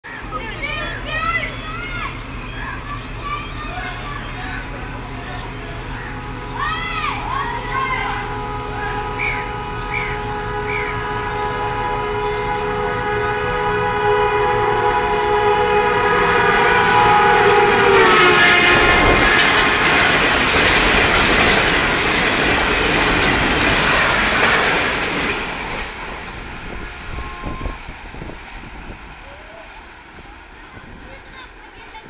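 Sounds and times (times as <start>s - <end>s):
locomotive horn blast: 3.6s - 29.0s
train wheels clattering: 18.2s - 32.0s.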